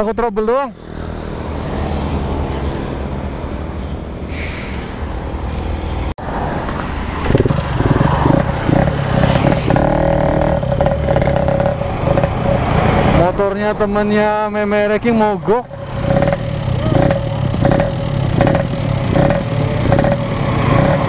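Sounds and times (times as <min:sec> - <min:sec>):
motorcycle engine running: 0:07.2 - 0:13.4, 0:14.9 - 0:21.0.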